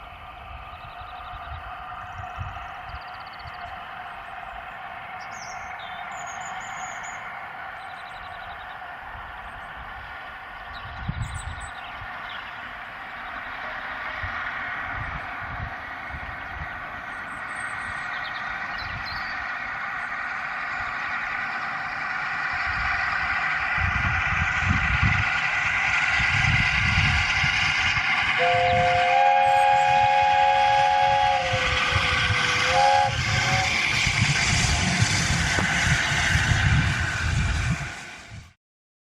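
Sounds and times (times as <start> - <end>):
steam locomotive exhaust beats: 0.0 - 38.6
two-note steam whistle: 27.8 - 35.7.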